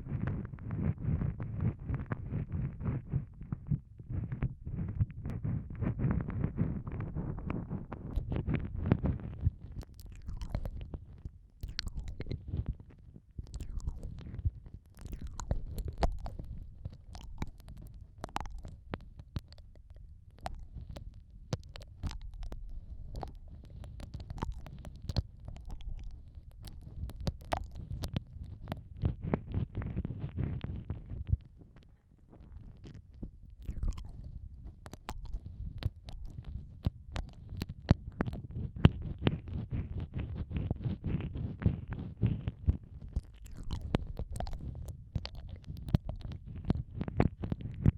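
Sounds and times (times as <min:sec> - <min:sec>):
low muffled rumble: 0:00.0 - 0:19.0
wet mouth clicks and smacks: 0:08.0 - 0:12.7, 0:13.4 - 0:29.6, 0:32.5 - 0:41.8, 0:42.5 - 0:47.9.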